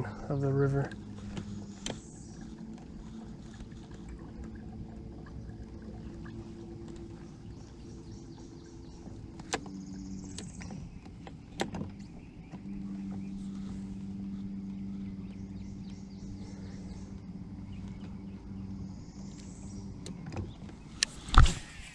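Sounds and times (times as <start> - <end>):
boat motor humming: 0.0 - 21.9.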